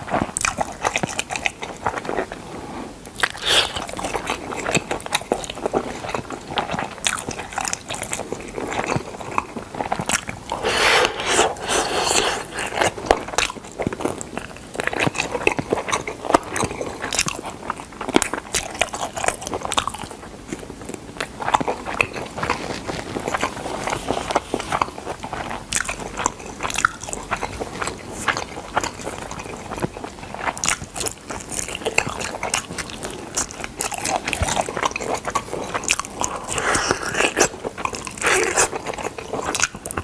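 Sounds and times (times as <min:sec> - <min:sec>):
person chewing crunchy food: 0:03.1 - 0:14.2, 0:21.3 - 0:40.0.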